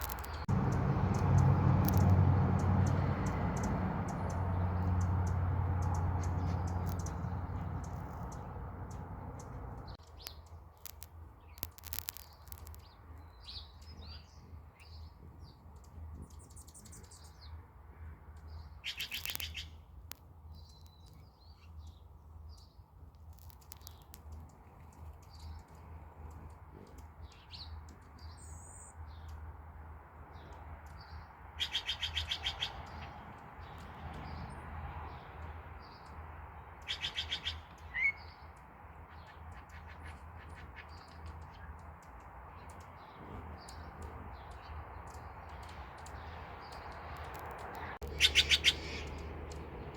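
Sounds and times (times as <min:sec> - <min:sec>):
birds chattering rapidly: 0:00.0 - 0:10.5, 0:23.8 - 0:29.4, 0:30.3 - 0:49.9
birds chirping: 0:00.0 - 0:10.6, 0:11.4 - 0:17.6, 0:23.6 - 0:29.5, 0:30.2 - 0:49.9.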